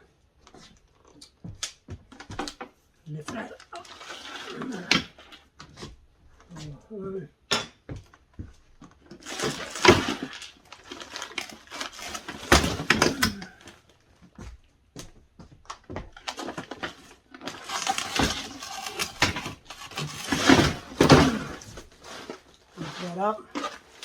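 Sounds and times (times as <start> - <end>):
plastic bins knocking and clattering: 7.6 - 14.6, 15.4 - 24.0
plastic bags rustling: 9.1 - 13.9, 16.2 - 24.0.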